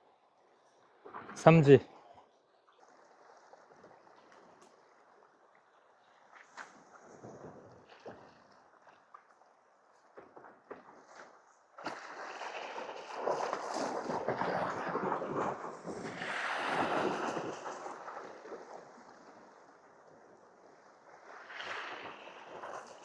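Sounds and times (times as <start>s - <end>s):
wind: 0.0s - 23.0s
sea wash on rocky shore: 1.1s - 1.9s, 11.8s - 23.0s.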